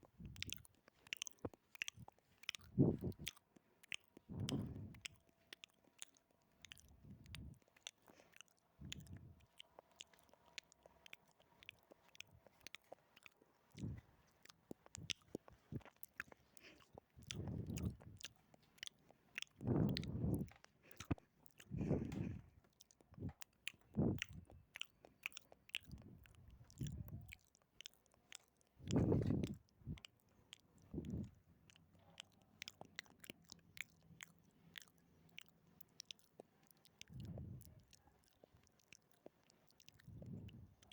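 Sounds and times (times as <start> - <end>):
wet tongue and lip clicks: 0.0 - 40.9
muffled low bursts: 19.6 - 20.5.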